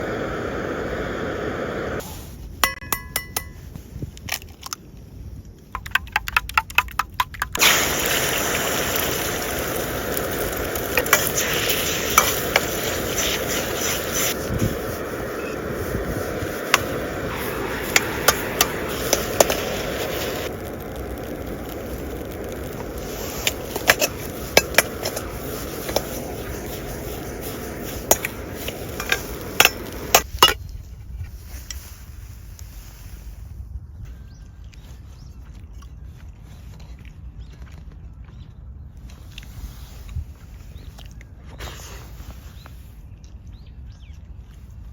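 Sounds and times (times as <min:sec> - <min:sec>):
steady hiss: 0:00.0 - 0:02.5, 0:07.6 - 0:30.5
frying sizzle: 0:07.6 - 0:30.3.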